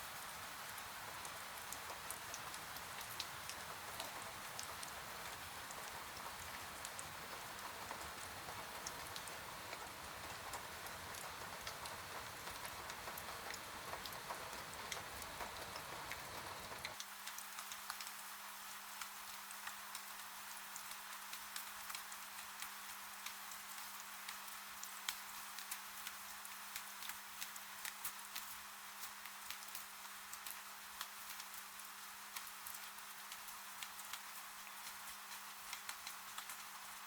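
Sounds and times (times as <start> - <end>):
rain pattering on a surface: 0.0 - 37.0
faint steady hum: 0.1 - 17.0.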